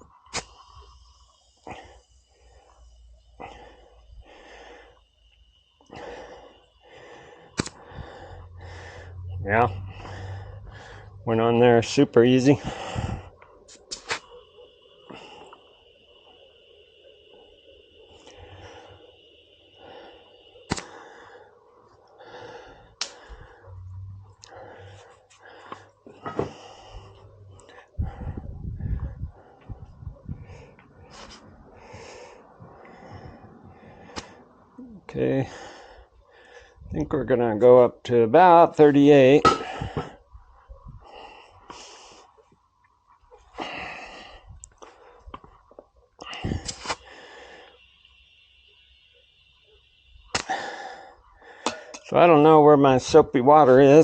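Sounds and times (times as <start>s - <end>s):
compressed air hissing: 0.0s - 34.9s, 46.2s - 52.2s.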